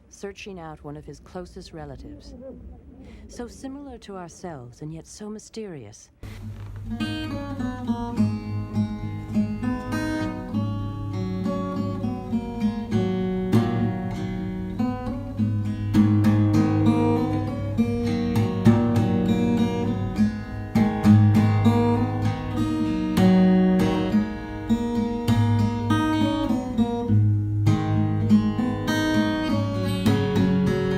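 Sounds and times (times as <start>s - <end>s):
acoustic guitar plucked and strummed: 6.2s - 30.9s
low sustained bass notes: 6.2s - 30.9s.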